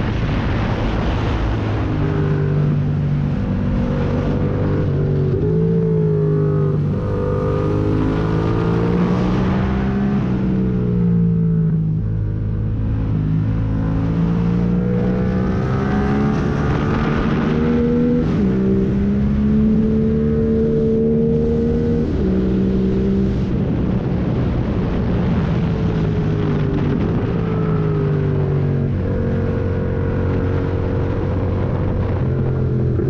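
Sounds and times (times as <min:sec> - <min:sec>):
motorcycle engine revving hard: 0:13.6 - 0:23.5.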